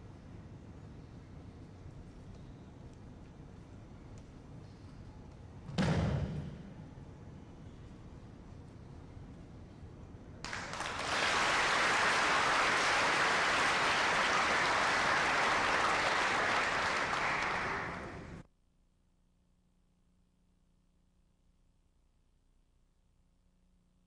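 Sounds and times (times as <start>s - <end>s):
group of people clapping: 10.4s - 18.4s.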